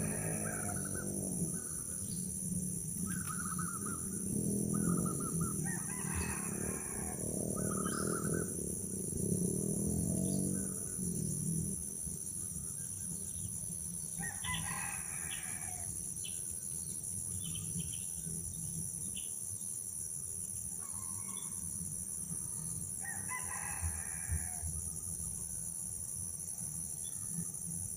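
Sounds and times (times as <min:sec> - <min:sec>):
long bird calls: 0:00.0 - 0:09.0
high-pitched insect drone: 0:00.0 - 0:27.9.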